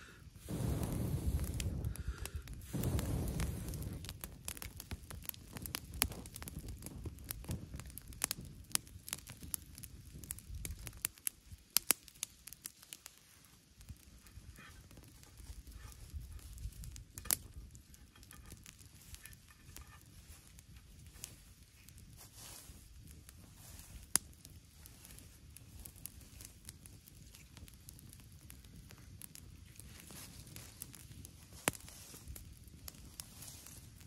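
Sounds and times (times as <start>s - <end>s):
wood fire crackling: 0.0s - 34.0s
low rumble: 0.4s - 4.4s.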